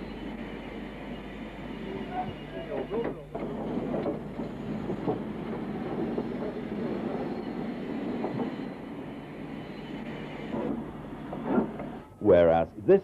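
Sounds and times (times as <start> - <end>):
steam train running: 0.0 - 13.0
faint track clatter: 1.9 - 12.2.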